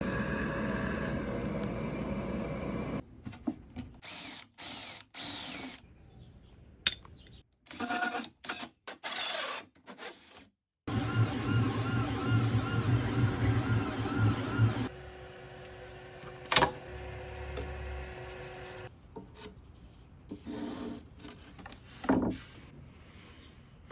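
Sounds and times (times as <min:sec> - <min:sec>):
machine and tool noise: 0:00.0 - 0:03.0, 0:10.9 - 0:18.9
three d printer stepper motor whines: 0:00.0 - 0:03.0, 0:10.9 - 0:15.7.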